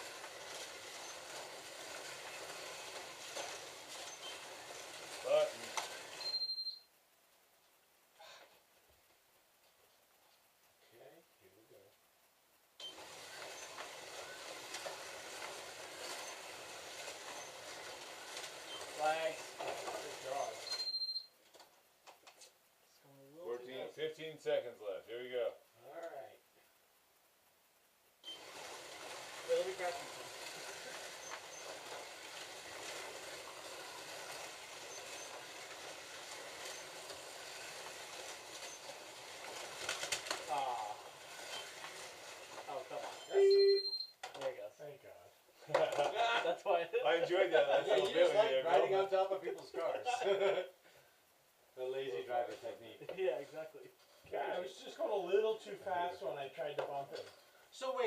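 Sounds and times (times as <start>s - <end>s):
slot cars whirring on track: 0.0s - 6.2s, 12.8s - 20.6s, 28.2s - 43.2s
short high beeps: 6.2s - 6.9s, 20.7s - 21.3s, 43.2s - 44.2s.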